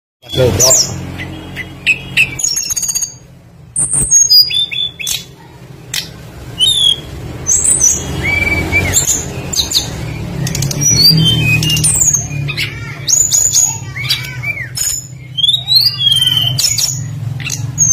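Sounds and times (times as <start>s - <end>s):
songbird whistling and chirping: 0.2s - 17.9s.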